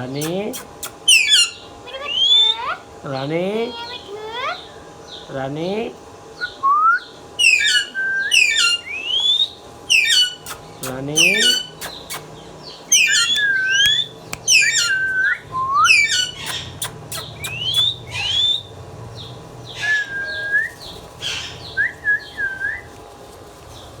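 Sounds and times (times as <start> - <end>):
harsh chirps: 0.2 - 2.8, 7.4 - 22.9
parrot whistling and calling: 0.2 - 2.8, 6.4 - 18.8, 19.7 - 22.9
sharp clicks: 13.3 - 14.8.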